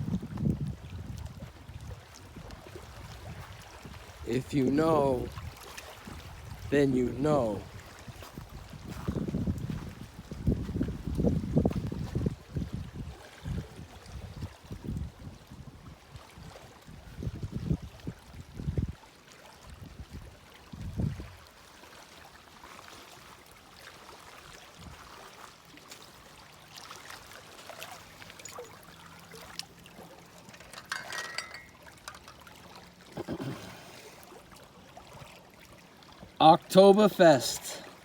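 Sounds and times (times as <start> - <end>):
water trickling and lapping: 0.0 - 38.0.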